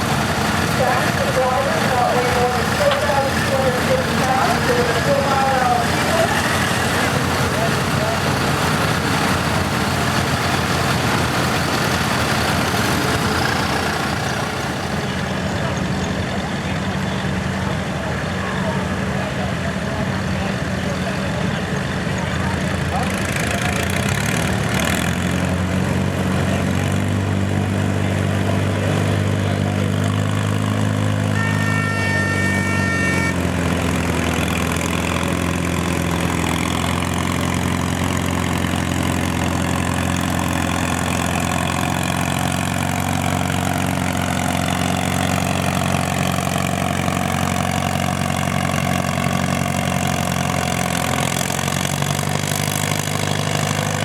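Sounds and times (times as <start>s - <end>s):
tractor engine running: 0.0s - 54.0s
short high-pitched tone: 31.3s - 33.5s.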